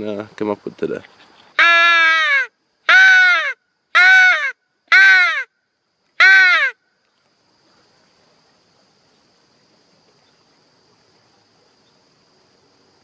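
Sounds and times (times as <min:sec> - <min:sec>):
crow call caws: 0:01.6 - 0:05.5.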